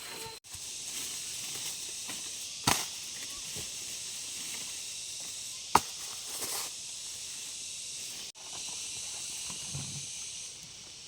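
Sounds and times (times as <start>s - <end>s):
steady high hiss: 0.0s - 11.0s
blade chopping bamboo: 2.6s - 3.0s, 5.7s - 6.2s.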